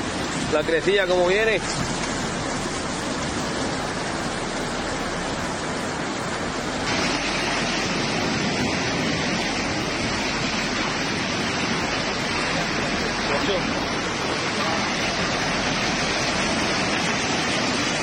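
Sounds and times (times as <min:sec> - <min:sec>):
rushing floodwater roar: 0:00.0 - 0:18.0.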